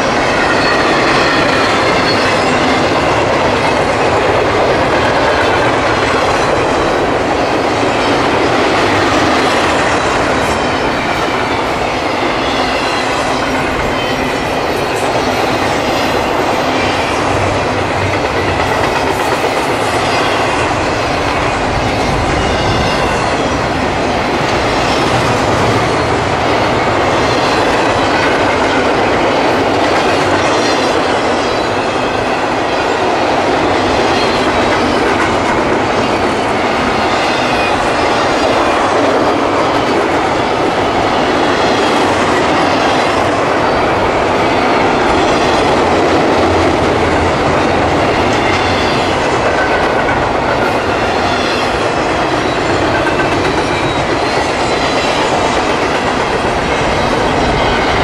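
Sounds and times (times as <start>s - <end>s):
wheels squealing on rail: 0.0s - 3.1s, 8.9s - 17.4s, 19.6s - 23.9s, 36.0s - 38.7s, 48.2s - 56.0s
freight train rumbling past: 0.0s - 58.0s.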